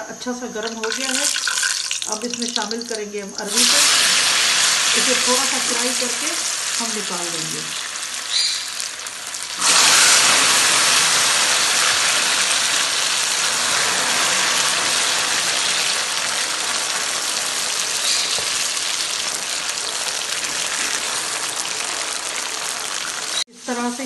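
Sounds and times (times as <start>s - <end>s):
taro slices sizzling in hot oil: 0.6s - 24.0s.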